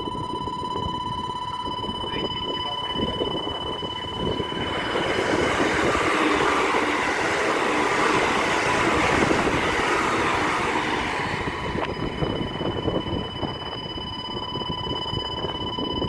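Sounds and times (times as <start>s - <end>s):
faint high whine: 0.0s - 16.0s
train wheels on rail: 4.2s - 13.9s.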